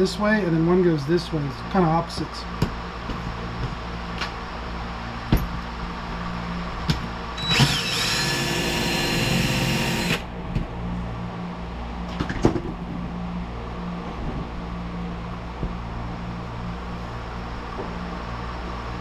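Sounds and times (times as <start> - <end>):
electric drill whining: 7.4 - 10.3.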